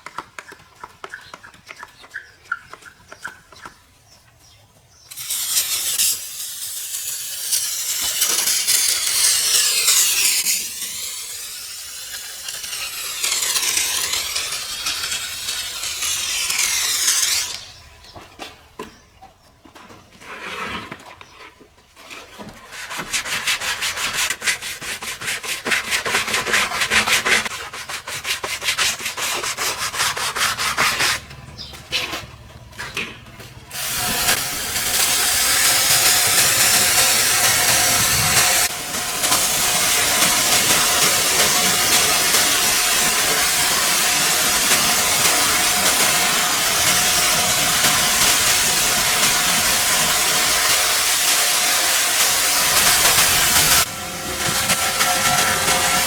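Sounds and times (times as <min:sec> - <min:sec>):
hard scrubbing against surface: 0:05.1 - 0:17.8, 0:22.0 - 0:31.2, 0:33.7 - 0:56.0.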